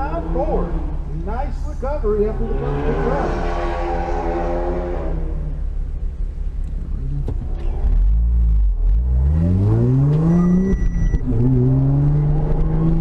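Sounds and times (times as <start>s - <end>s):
car engine accelerating hard: 2.1s - 6.0s, 6.6s - 13.0s.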